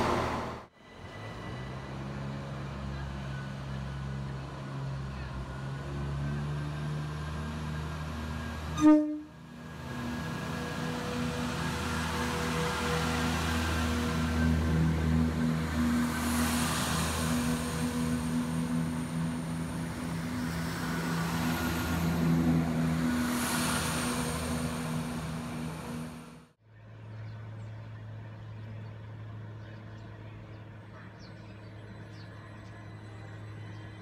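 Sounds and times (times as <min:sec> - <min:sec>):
train passing at speed: 0:00.0 - 0:26.6
electric train low hum: 0:00.0 - 0:34.0.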